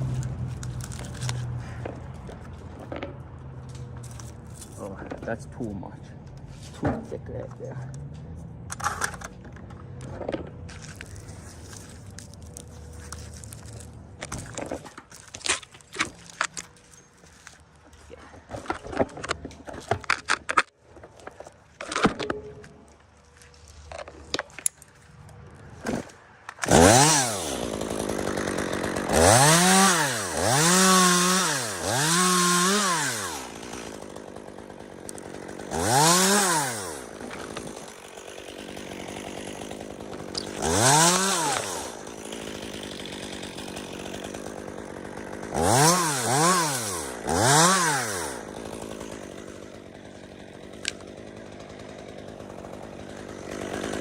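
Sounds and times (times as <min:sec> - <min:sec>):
chainsaw revving and idling: 0:25.5 - 0:54.0.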